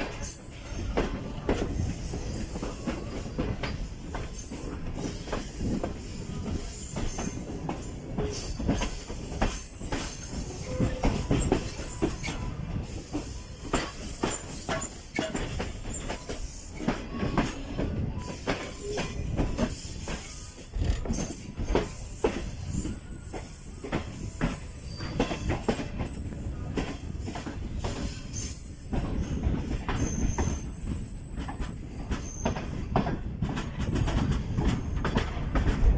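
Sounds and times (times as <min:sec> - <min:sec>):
train wheels knocking on rail joints: 0:00.0 - 0:35.9
high-pitched wheel squeal: 0:29.8 - 0:32.8.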